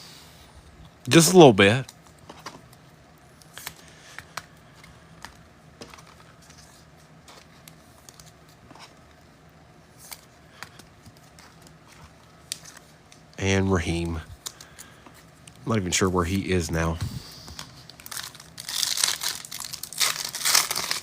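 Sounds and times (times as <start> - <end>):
faint steady hum: 0.0 - 21.0
trading cards clicking and rustling: 3.4 - 9.1, 10.0 - 16.0, 16.8 - 21.0.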